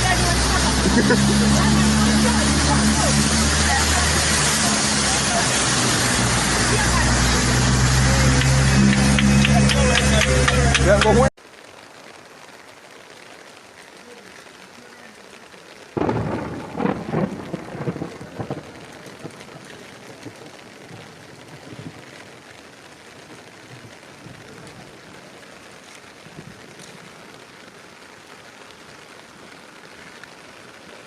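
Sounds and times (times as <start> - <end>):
heavy rain hissing: 0.0 - 31.0
rumbling burst: 16.0 - 19.6.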